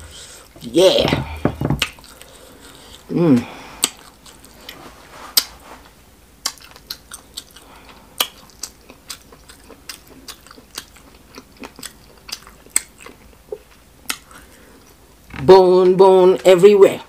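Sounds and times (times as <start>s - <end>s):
person chewing and lip-smacking: 1.8s - 4.8s, 6.4s - 15.0s.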